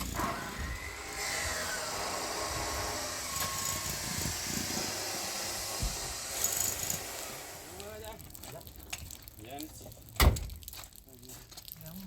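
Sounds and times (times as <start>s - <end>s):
loud hiss: 0.0s - 8.2s.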